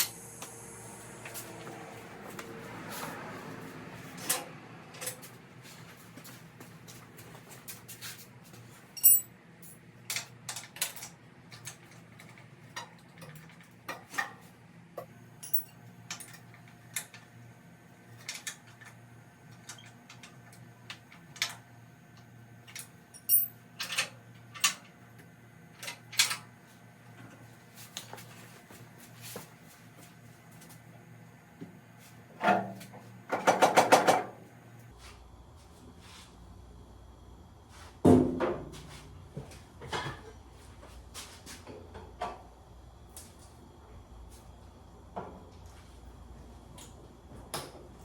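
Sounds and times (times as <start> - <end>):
metal tools clinking on metal: 9.0 - 9.3, 15.4 - 16.4, 22.7 - 24.0.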